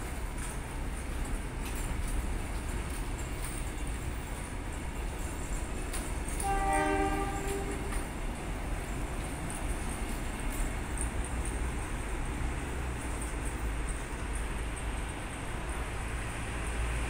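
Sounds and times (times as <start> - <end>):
train carriages rumbling past: 0.0 - 17.0
locomotive horn blast: 6.4 - 8.0.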